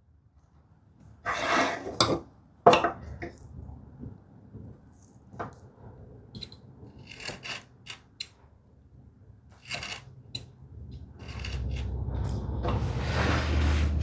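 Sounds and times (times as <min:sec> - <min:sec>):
hand tools scraping wood: 0:01.3 - 0:02.0, 0:07.0 - 0:08.1, 0:09.6 - 0:10.2, 0:11.1 - 0:14.0.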